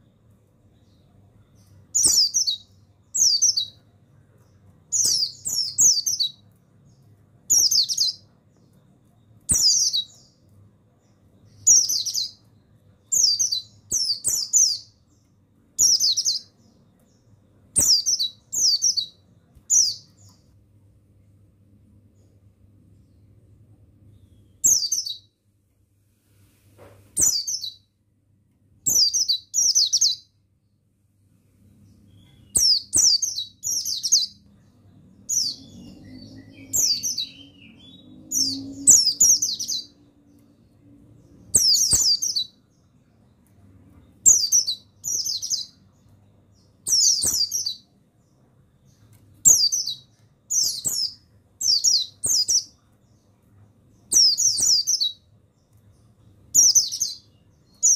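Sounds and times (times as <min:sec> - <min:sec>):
faint low hum: 0:00.0 - 0:57.9
bird twittering: 0:35.3 - 0:40.0.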